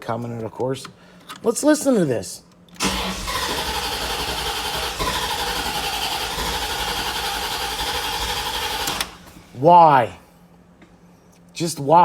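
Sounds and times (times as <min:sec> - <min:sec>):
starter motor cranking engine: 0:02.8 - 0:09.5.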